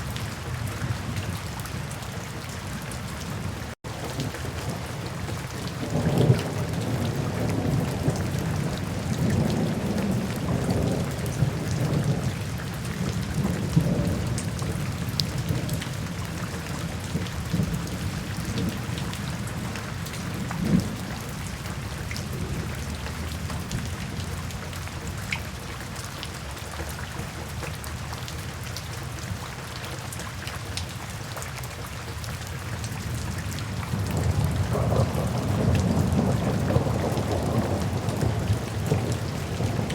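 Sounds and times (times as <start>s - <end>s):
steady rain falling: 0.0s - 39.9s
low rolling thunder: 5.5s - 24.8s, 33.0s - 39.9s.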